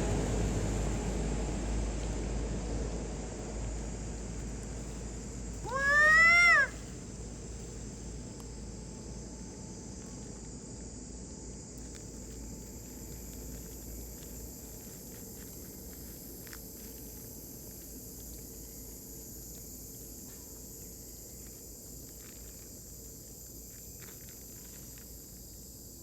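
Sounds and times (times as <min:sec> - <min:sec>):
steady background hiss: 0:00.0 - 0:26.0
high drawn-out animal call: 0:05.6 - 0:06.8.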